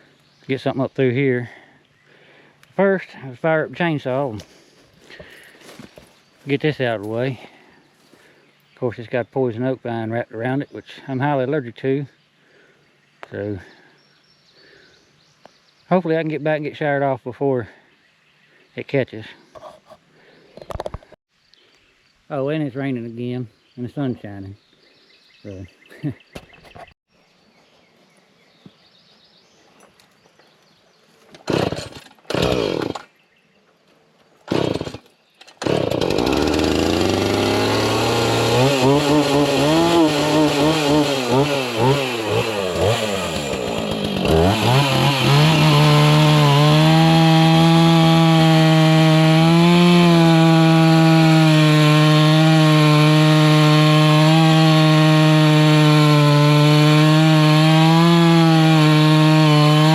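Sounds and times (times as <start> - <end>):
chainsaw pull-start cranks: 31.3 - 33.1, 34.5 - 59.9
chainsaw revving: 31.4 - 33.1, 34.5 - 35.0, 35.6 - 59.9.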